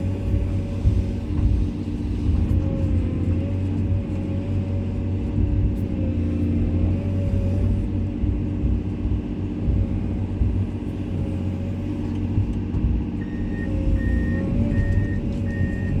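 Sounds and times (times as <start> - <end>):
excavator diesel engine running: 0.0 - 16.0
warning alarm beeping: 13.2 - 16.0.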